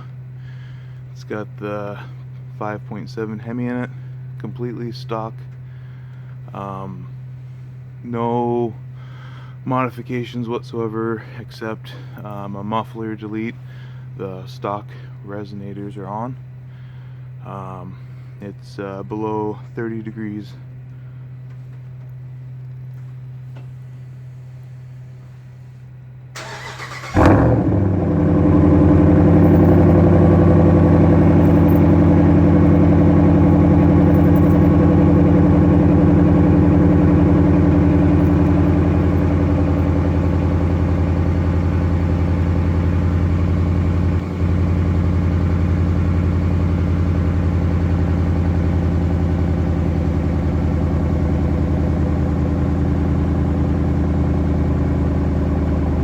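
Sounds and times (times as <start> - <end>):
engine starter cranking: 26.4 - 28.0
engine fast cold idle: 26.4 - 56.0.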